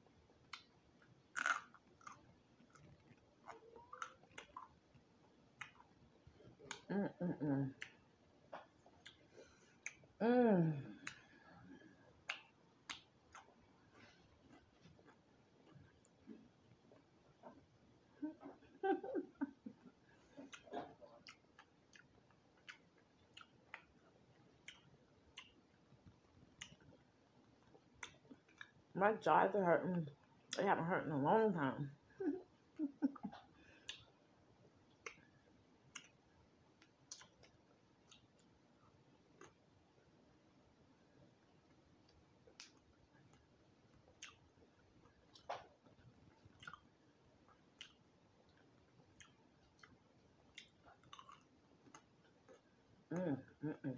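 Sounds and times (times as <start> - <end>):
mouth chewing crispy food: 0.4 - 4.8, 36.8 - 38.6, 42.1 - 53.2
wet chewing with crunches: 20.3 - 28.8, 36.8 - 38.6, 41.6 - 52.7.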